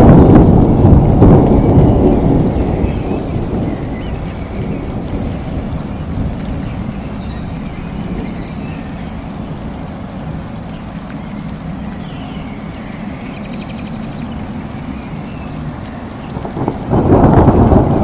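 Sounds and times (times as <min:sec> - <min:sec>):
thunder rumble: 0:00.0 - 0:09.7, 0:15.6 - 0:18.0
rain: 0:00.0 - 0:18.0.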